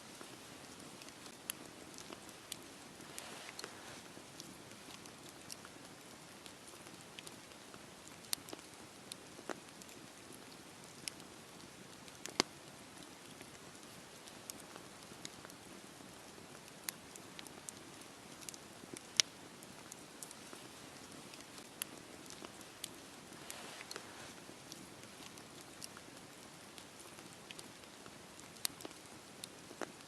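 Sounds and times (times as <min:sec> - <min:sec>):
burning wood crackling and popping: 0:00.0 - 0:30.0
flame rushing: 0:03.0 - 0:04.0, 0:23.3 - 0:24.4.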